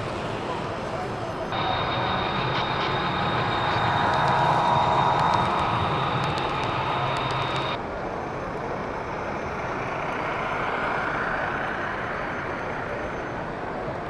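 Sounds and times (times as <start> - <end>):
hall background noise: 0.0 - 7.9
model train hum and rumble: 0.0 - 14.0.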